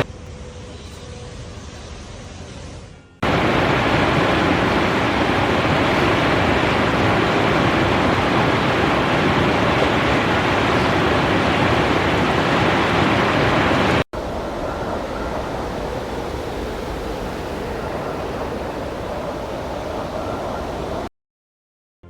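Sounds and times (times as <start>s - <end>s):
hail and rain coming down hard: 3.2s - 14.0s.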